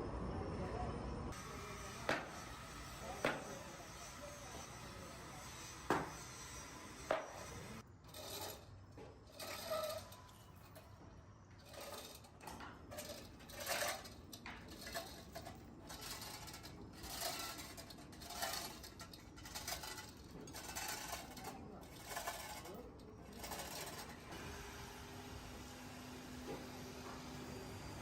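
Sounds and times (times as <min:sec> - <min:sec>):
metal scraping and clattering: 0:07.8 - 0:11.0, 0:11.6 - 0:24.4.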